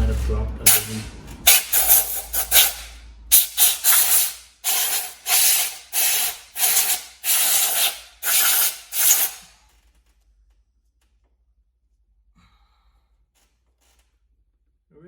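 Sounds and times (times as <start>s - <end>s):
compressed air hissing bursts: 0.1s - 9.6s.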